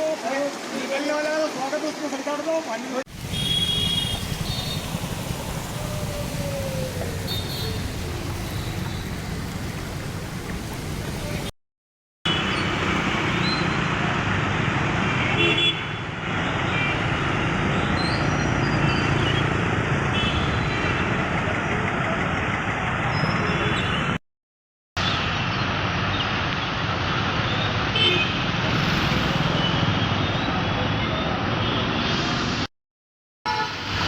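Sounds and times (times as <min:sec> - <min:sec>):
traffic hiss: 0:00.1 - 0:11.5
vehicle horn toots: 0:03.2 - 0:04.9.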